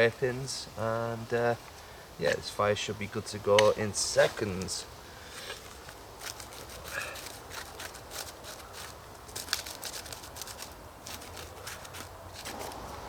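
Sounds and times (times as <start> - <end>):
knife blade scraping bark: 5.4 - 12.9.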